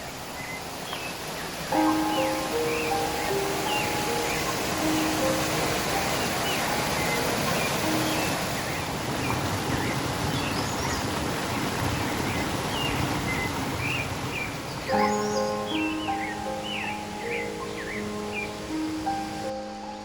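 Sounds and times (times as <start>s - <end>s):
small birds chirping: 0.0s - 20.0s
waterfall rushing: 0.0s - 20.0s.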